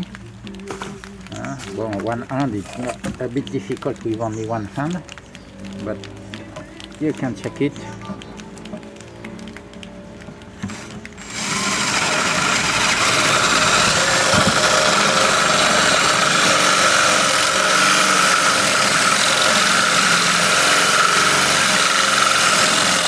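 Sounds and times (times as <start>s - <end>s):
electric drill boring metal: 10.6s - 23.0s.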